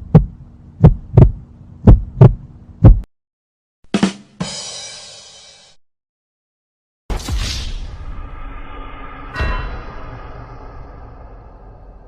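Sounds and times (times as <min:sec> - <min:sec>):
heartbeat thumps: 0:00.0 - 0:03.1
long hissing crash: 0:07.1 - 0:12.0
sharp hit: 0:07.1 - 0:12.0.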